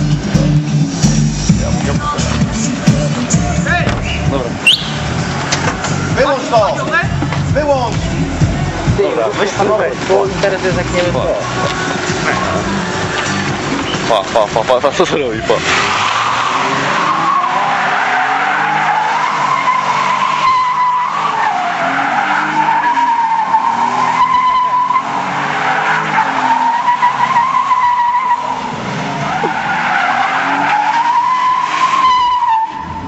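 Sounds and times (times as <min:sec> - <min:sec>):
tyres squealing: 0:01.9 - 0:33.0
engine at high revs: 0:07.9 - 0:33.0.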